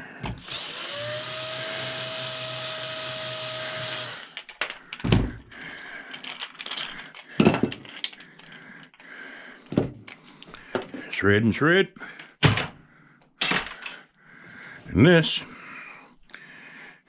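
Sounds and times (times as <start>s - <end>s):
electric power tool running: 0.3s - 4.5s
knocks of parts handled: 6.1s - 8.2s, 12.2s - 12.8s.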